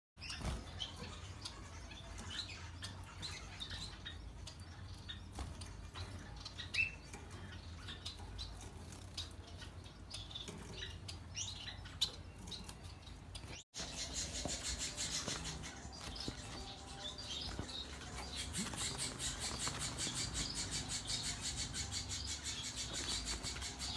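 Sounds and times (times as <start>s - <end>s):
finches chirping: 0.2s - 23.9s
wing flutters: 17.6s - 21.2s.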